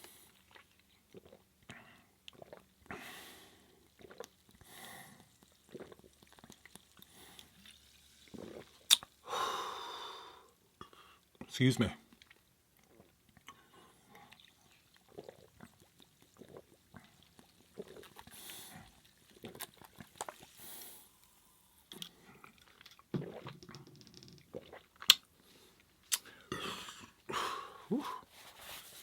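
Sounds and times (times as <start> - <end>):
chewing and lip smacks: 5.4 - 7.5, 8.4 - 9.2, 12.1 - 18.4, 19.3 - 20.5, 24.5 - 26.4.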